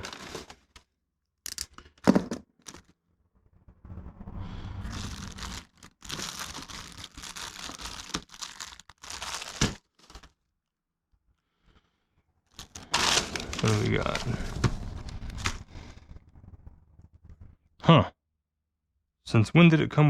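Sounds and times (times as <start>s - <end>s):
packaging rustling and crinkling: 0.0s - 0.8s, 2.1s - 2.9s, 4.8s - 10.4s, 12.5s - 16.0s
packaging tearing: 0.0s - 0.8s, 4.9s - 10.4s, 12.5s - 15.9s.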